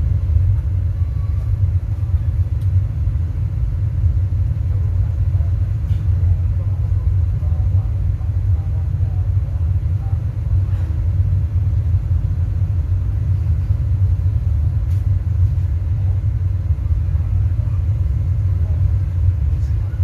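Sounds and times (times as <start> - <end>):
deep bass rumble from subwoofers: 0.0 - 20.0.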